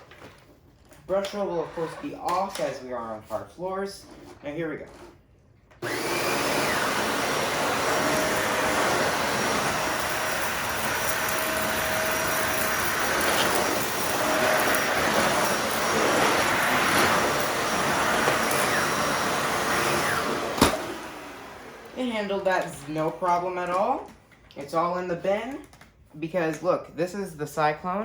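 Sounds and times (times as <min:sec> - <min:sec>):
vacuum cleaner motor running: 0:05.8 - 0:23.6.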